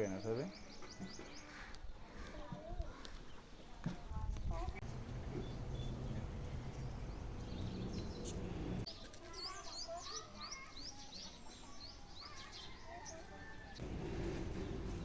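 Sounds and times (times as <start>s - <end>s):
birds chirping: 0.0s - 2.3s, 4.8s - 15.0s
low rumbling background noise: 4.6s - 8.9s, 13.8s - 15.0s.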